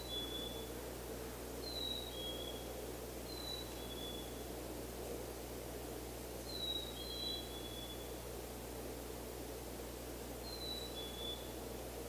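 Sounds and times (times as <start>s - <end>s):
songbird two-note whistled song: 0.0s - 0.6s, 10.4s - 11.6s
outdoor background hiss: 0.0s - 12.0s.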